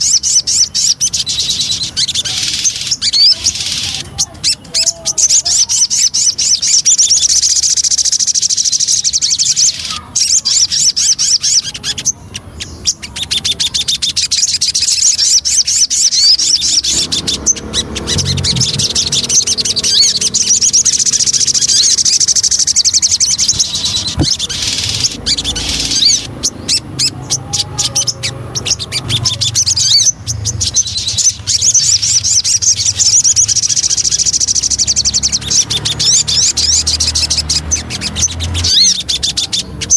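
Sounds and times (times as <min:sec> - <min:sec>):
bird chattering and trilling: 0:00.0 - 0:39.9
low hum: 0:17.2 - 0:19.9.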